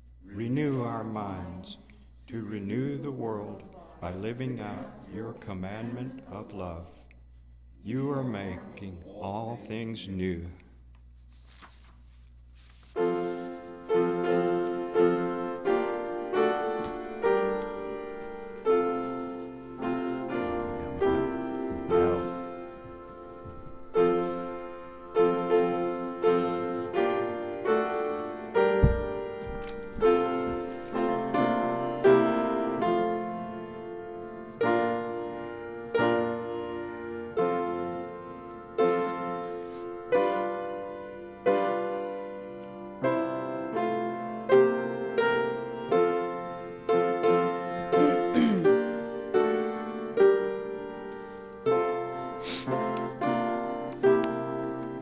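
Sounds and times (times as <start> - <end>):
piano playing slow chords: 12.9 - 55.0.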